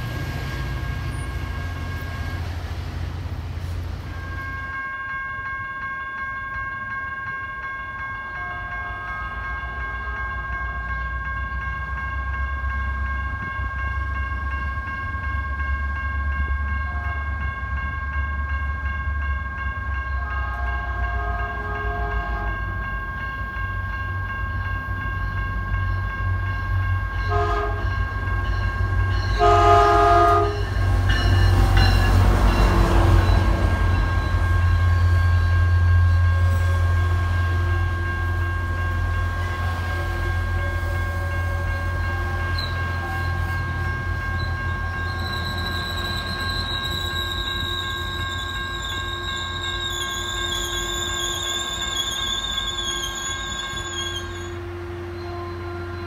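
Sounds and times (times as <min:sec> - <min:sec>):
diesel locomotive rumble: 0:00.0 - 0:04.8
crossing bells ringing: 0:00.0 - 0:56.0
train cars rolling by: 0:00.0 - 0:56.0
locomotive horn blasts: 0:20.1 - 0:22.7, 0:27.3 - 0:28.0, 0:29.4 - 0:30.8, 0:52.8 - 0:56.0.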